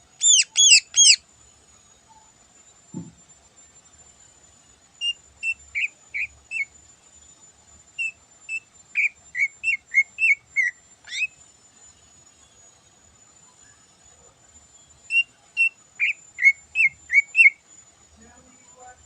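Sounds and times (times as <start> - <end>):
bird whistling song: 0.2 - 1.2, 5.0 - 6.7, 8.0 - 11.4, 15.1 - 17.6.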